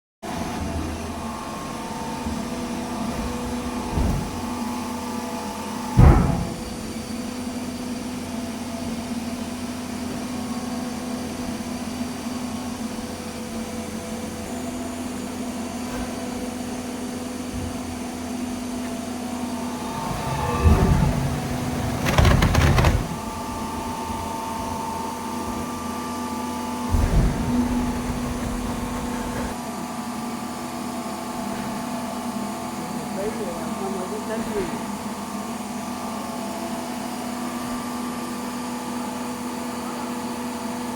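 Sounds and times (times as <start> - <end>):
hydraulic baler humming: 0.3 - 29.9
loud knocks and clattering: 2.1 - 4.9, 6.0 - 6.8, 19.8 - 24.2, 26.8 - 29.6.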